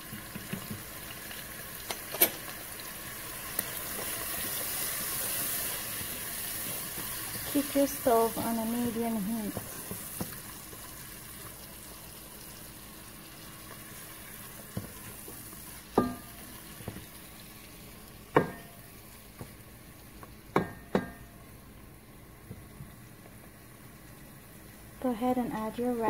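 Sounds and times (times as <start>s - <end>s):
onions frying in oil: 0.0s - 26.0s
spatula knocking against pot: 15.9s - 16.4s, 18.3s - 18.8s, 20.5s - 21.3s.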